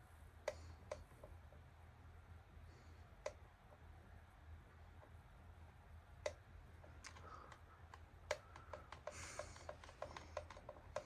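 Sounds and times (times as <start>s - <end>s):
ceiling fan humming: 0.0s - 11.0s
light irregular clicks: 0.4s - 1.7s, 3.1s - 3.9s, 6.2s - 11.0s.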